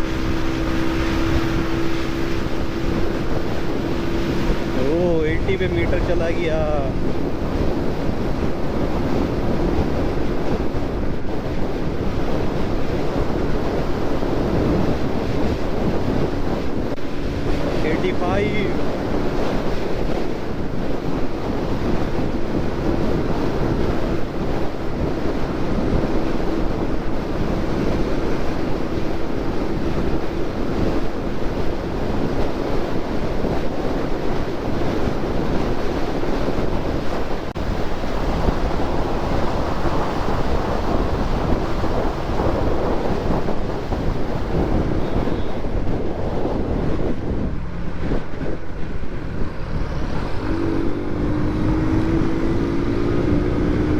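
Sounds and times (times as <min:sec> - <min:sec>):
faint engine drone: 0:00.0 - 0:11.1, 0:37.5 - 0:53.9
wind buffeting microphone: 0:00.0 - 0:53.9.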